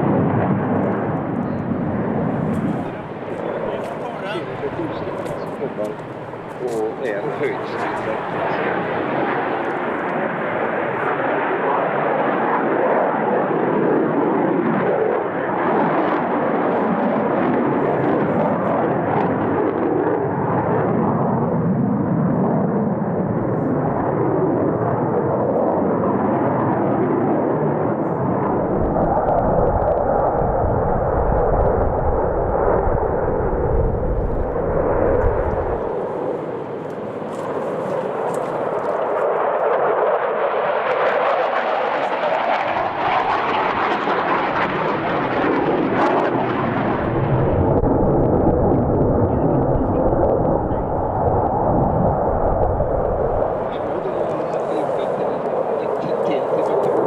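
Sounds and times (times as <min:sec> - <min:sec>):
fighter jet roar: 0:00.0 - 0:26.7, 0:28.2 - 0:57.0
deep rumble: 0:28.4 - 0:38.9, 0:46.4 - 0:54.5.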